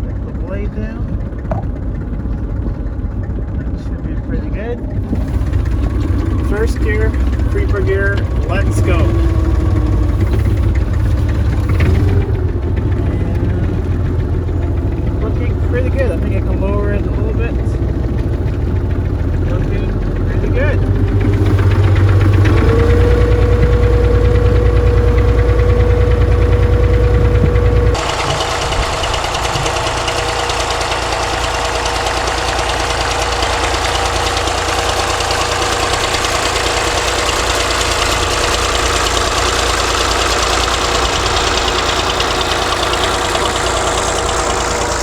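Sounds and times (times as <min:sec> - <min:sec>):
diesel tractor engine running: 0:00.0 - 0:45.0
steady whine: 0:19.5 - 0:45.0.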